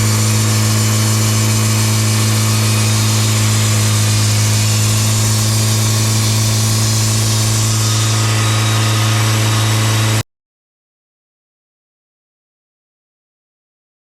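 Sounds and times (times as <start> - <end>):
sawmill engine humming: 0.0 - 10.2.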